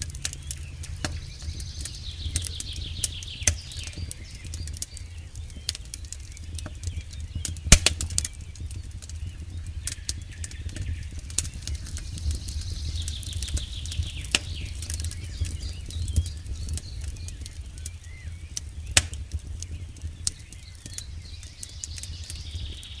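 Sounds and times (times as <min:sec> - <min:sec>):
low rumble of flames: 0:00.0 - 0:23.0
wood crackling and popping: 0:00.0 - 0:23.0.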